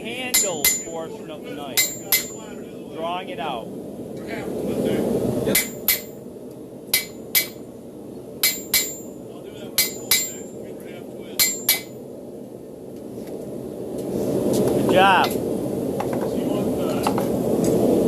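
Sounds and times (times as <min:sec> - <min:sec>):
hammer striking steel on anvil: 0:00.3 - 0:01.0, 0:01.8 - 0:02.5, 0:05.5 - 0:06.2, 0:06.9 - 0:07.6, 0:08.4 - 0:09.2, 0:09.8 - 0:10.5, 0:11.4 - 0:12.0.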